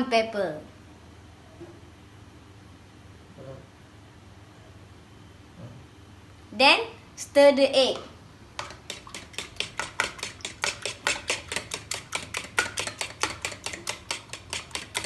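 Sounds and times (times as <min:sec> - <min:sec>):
whisk clicking against bowl: 0:08.6 - 0:15.0.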